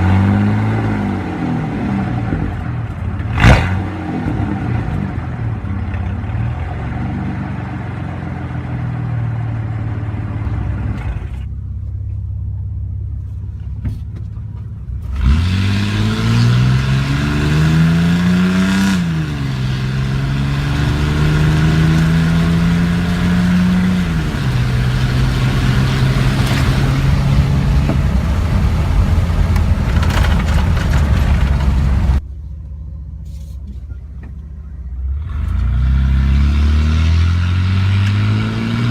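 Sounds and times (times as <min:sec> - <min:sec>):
loud truck engine pulling hard: 0:15.0 - 0:32.2, 0:35.1 - 0:38.9.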